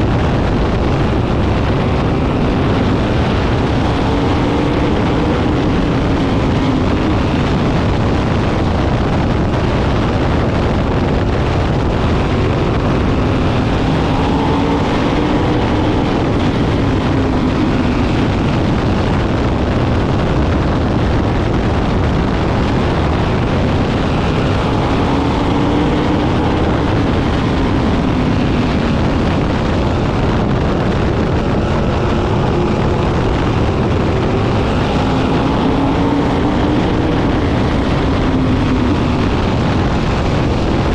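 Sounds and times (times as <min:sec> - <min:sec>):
race car engines passing: 0:00.0 - 0:40.9.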